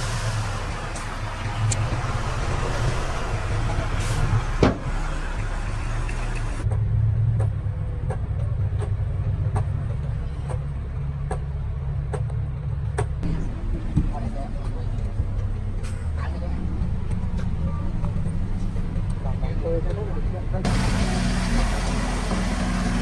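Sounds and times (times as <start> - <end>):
diesel engine droning: 0.0 - 23.0.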